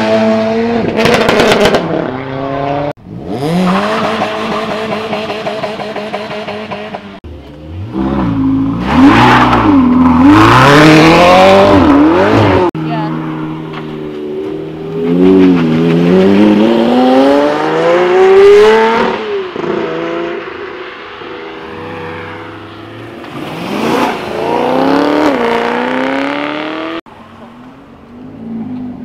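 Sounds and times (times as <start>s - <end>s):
car engine accelerating: 0.0s - 27.0s.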